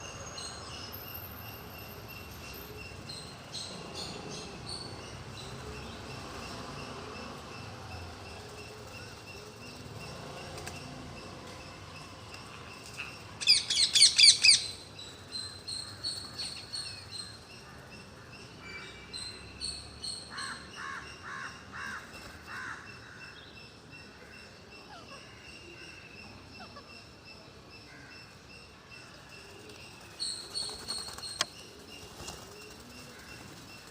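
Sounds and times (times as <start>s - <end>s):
parrots calling and chattering: 12.8s - 16.2s, 24.5s - 28.4s.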